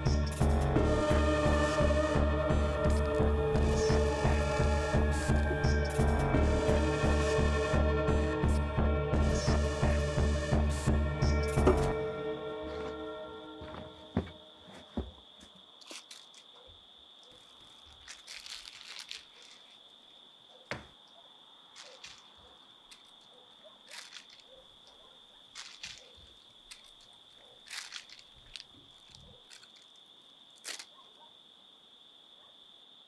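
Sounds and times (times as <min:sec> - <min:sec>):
rustling and crinkling: 0:12.7 - 0:13.0, 0:13.6 - 0:21.0, 0:21.7 - 0:31.2.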